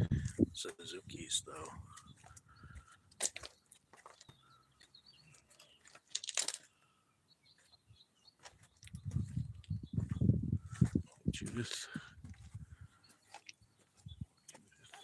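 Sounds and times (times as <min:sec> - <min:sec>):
faint bird chirps: 0:01.9 - 0:06.0, 0:12.7 - 0:15.0
crunching and rustling: 0:03.1 - 0:04.4, 0:05.3 - 0:06.7.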